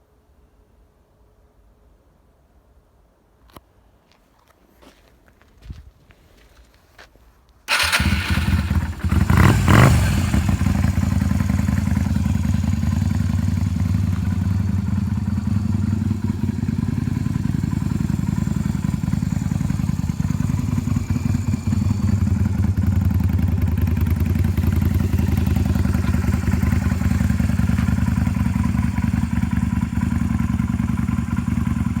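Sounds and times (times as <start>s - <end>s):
motorcycle engine starting and idling: 7.7s - 32.0s.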